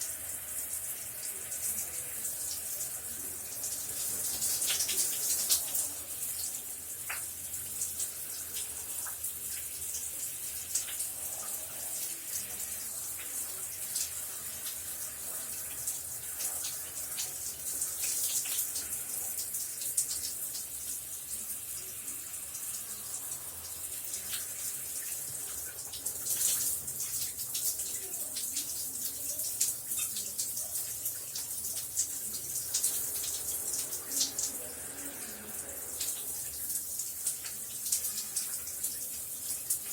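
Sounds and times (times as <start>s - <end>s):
shower spray hissing: 0.0s - 39.9s.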